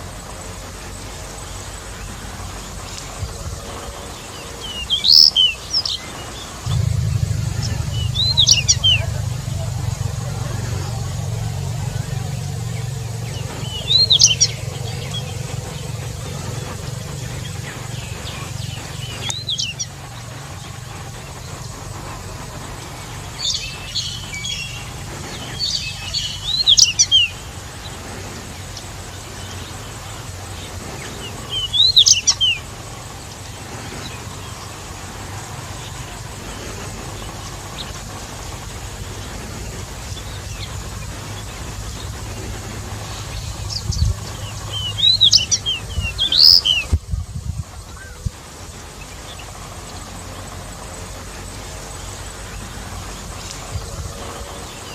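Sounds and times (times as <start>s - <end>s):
low background rumble: 5.7s - 54.9s
bird singing warbled phrases: 43.0s - 47.0s.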